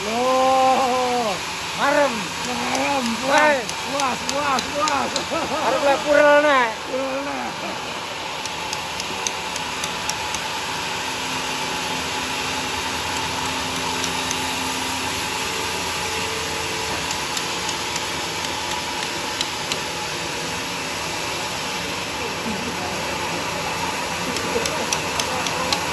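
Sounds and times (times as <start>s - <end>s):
sawmill machine running: 0.0s - 25.9s
sharp ticks: 1.8s - 6.2s, 8.4s - 10.6s, 12.9s - 14.8s, 16.7s - 19.9s, 24.2s - 25.9s.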